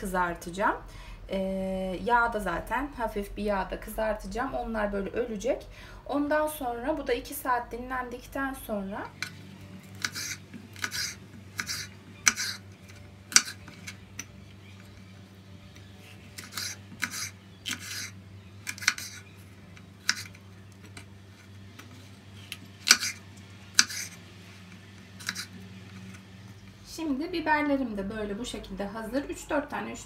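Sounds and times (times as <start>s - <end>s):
knife slicing on wooden board: 9.2s - 14.0s, 16.0s - 19.3s, 20.0s - 20.4s, 22.8s - 23.2s, 23.8s - 24.2s, 25.2s - 25.6s.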